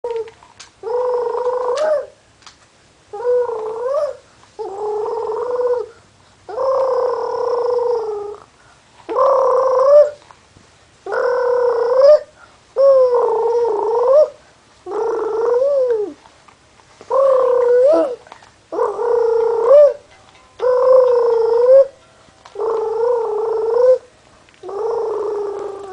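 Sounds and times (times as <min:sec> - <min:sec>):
baby cooing: 0:17.1 - 0:20.0, 0:20.6 - 0:25.9.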